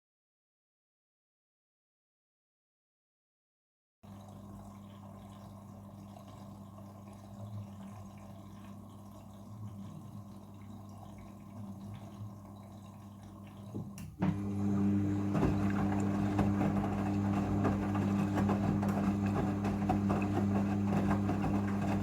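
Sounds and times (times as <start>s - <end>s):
washing machine hum: 4.0s - 22.0s
water trickling: 4.1s - 17.4s
washing machine motor running: 4.1s - 22.0s.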